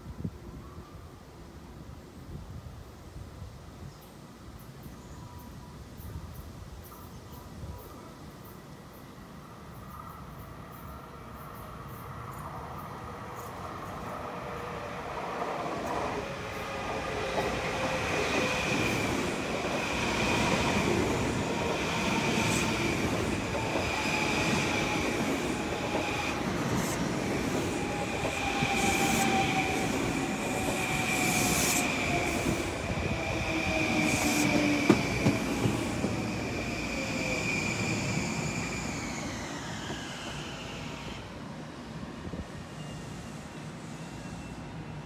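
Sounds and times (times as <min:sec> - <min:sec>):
rail noise: 0:00.0 - 0:45.0
high brake squeal: 0:42.6 - 0:45.0.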